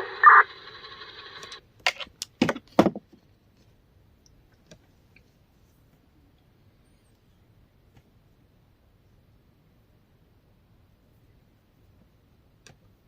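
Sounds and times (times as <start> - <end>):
radio hiss: 0.0 - 1.6
radio transmission burst: 0.0 - 1.6.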